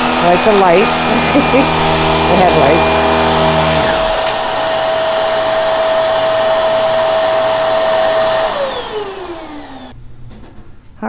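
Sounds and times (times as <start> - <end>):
vacuum motor whine: 0.0 - 10.0
vacuum motor winding down: 0.0 - 10.0.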